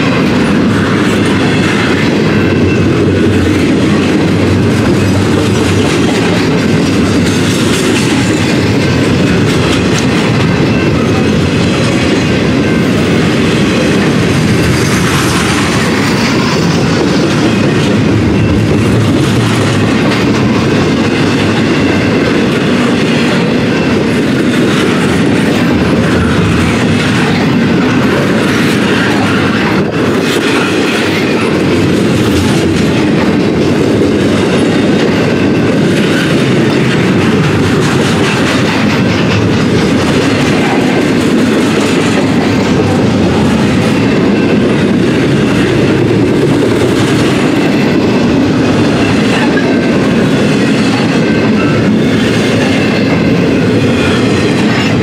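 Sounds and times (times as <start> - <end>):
train wheels clattering on rails: 0.0 - 55.0.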